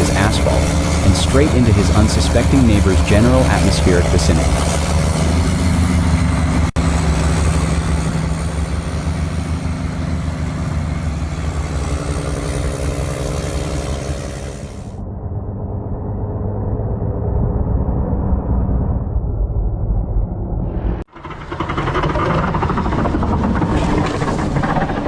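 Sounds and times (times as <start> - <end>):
snow-clearing machine engine: 0.0 - 15.0, 21.1 - 25.0
second machine engine: 0.0 - 16.2, 20.6 - 25.0.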